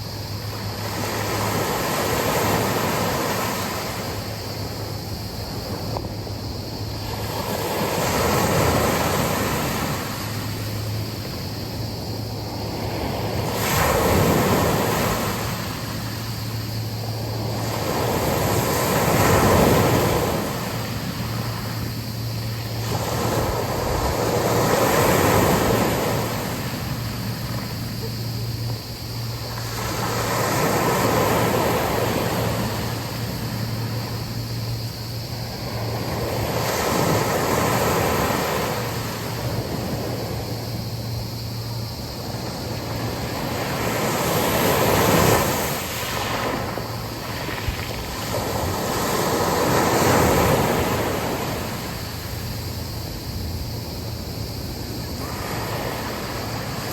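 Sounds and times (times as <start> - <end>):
sea waves breaking on beach: 0.0 - 56.9
wind: 0.0 - 56.9.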